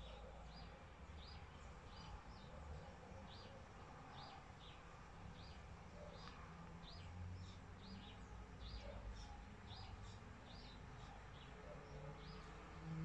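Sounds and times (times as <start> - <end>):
faint bird chirping: 0.0 - 13.0.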